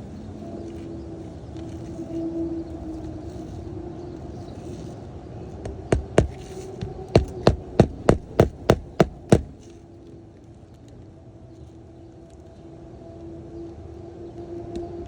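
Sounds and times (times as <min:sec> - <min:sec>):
steady background hum: 0:00.0 - 0:15.0
hammer driving nails: 0:05.9 - 0:09.6.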